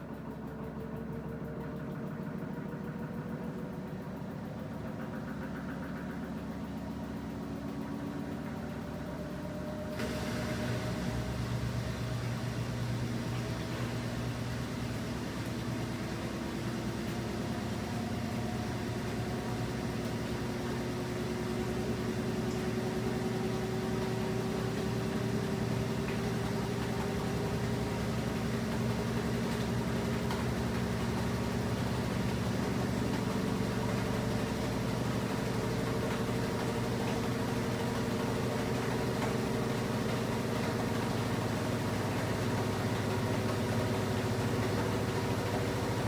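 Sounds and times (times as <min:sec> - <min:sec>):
washing machine motor whine: 0:00.0 - 0:46.0.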